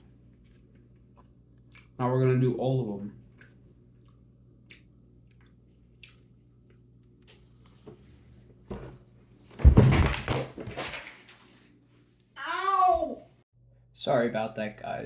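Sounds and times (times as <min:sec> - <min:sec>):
faint chewing: 0:00.0 - 0:02.5, 0:03.2 - 0:07.8
loud crash of something knocked over: 0:09.6 - 0:11.2.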